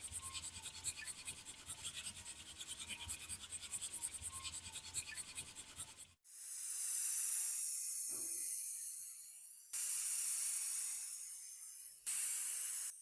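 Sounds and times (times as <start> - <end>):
stiff brush scrubbing metal: 0.0 - 6.2.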